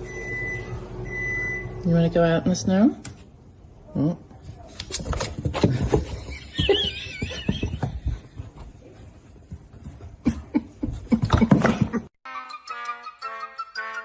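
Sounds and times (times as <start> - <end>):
rustling and knocking: 5.0 - 12.1
music with whistle-like melody: 12.3 - 14.0.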